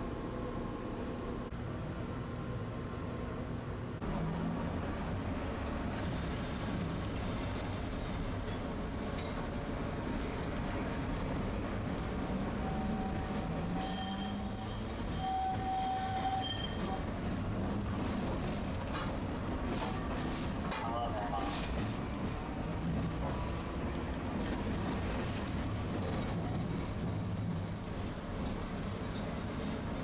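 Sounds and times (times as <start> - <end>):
streetcar wheels rumbling: 0.0 - 30.0
high-pitched wheel squeal: 13.8 - 17.0.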